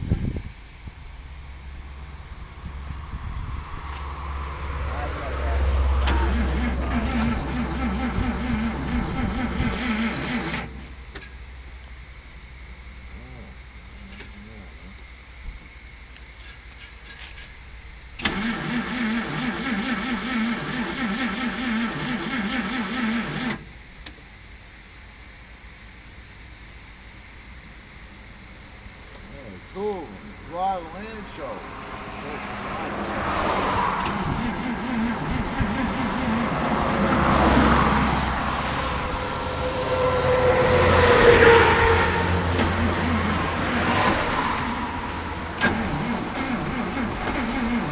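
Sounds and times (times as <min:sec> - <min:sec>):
car engine revving: 0:01.2 - 0:11.0, 0:30.3 - 0:47.9
starter motor cranking engine: 0:06.0 - 0:11.3, 0:18.2 - 0:23.7, 0:34.0 - 0:36.8, 0:45.4 - 0:47.9.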